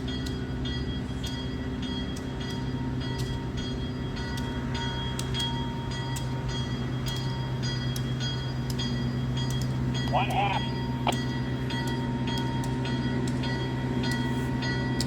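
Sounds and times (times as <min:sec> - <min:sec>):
diesel locomotive engine running: 0:06.2 - 0:15.0.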